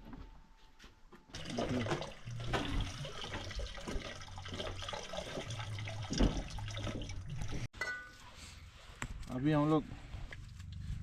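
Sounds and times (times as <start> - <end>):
tap water filling container: 1.3 - 7.7.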